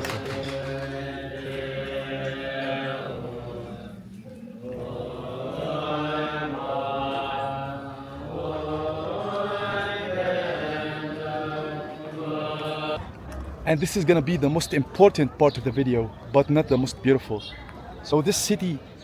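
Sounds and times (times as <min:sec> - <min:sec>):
voices chanting in long tones: 0:00.0 - 0:13.2.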